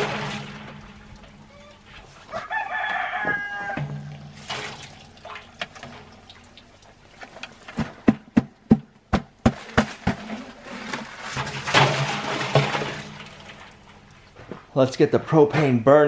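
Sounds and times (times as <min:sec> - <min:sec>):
liquid pouring splashily: 0:04.2 - 0:07.4.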